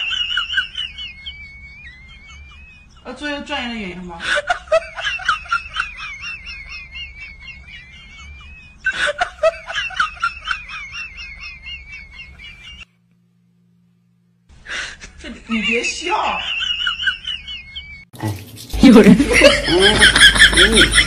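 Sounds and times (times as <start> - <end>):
wheezy snickering laughter: 4.2 - 12.9, 19.1 - 21.0.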